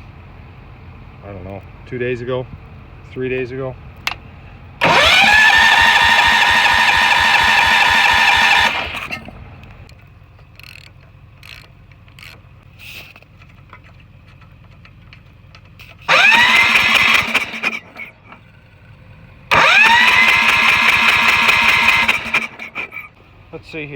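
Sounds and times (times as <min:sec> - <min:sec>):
starter cranking engine: 0:04.8 - 0:23.2.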